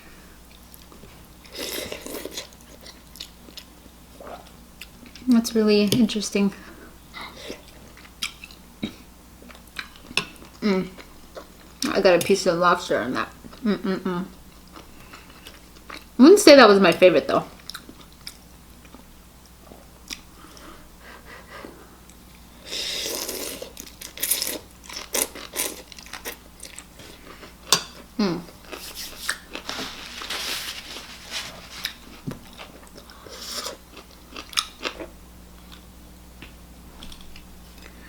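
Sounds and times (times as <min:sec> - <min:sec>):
chewing: 0:17.6 - 0:19.0.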